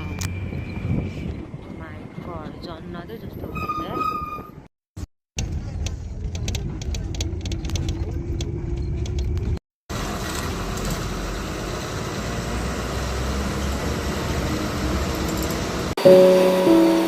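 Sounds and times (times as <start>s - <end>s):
vehicle rumbling: 5.4s - 16.0s
background music: 16.0s - 17.0s.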